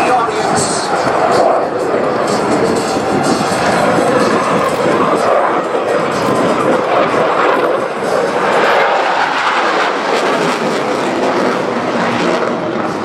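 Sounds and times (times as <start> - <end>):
loud jet noise: 0.0 - 13.0.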